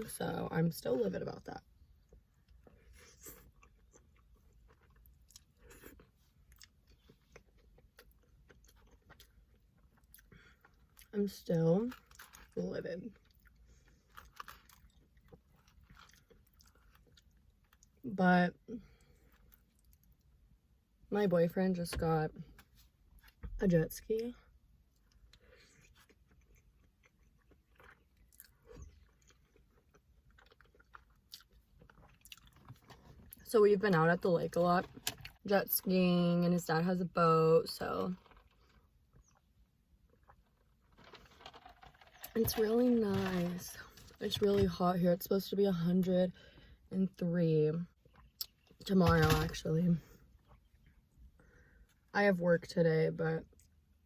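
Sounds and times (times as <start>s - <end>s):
close-up chewing: 1.8s - 11.2s, 11.9s - 18.0s, 24.9s - 33.4s, 47.9s - 48.8s.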